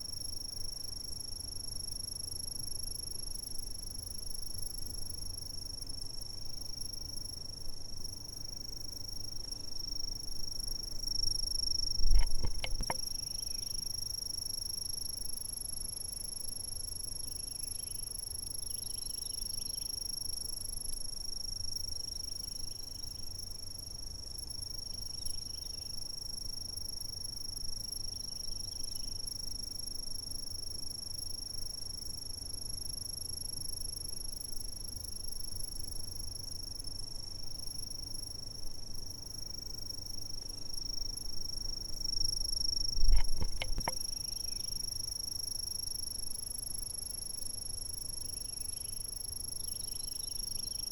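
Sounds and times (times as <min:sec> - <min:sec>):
insects trilling: 0:00.0 - 0:50.9
low thump with clicks: 0:43.0 - 0:44.0.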